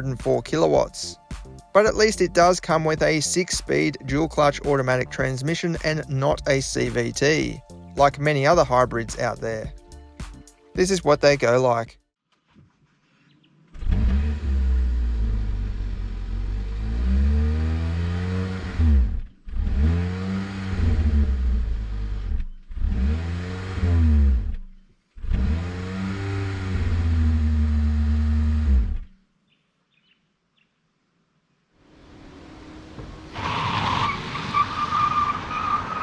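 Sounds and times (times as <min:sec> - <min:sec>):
car engine accelerating: 0:13.7 - 0:29.1, 0:31.9 - 0:36.0.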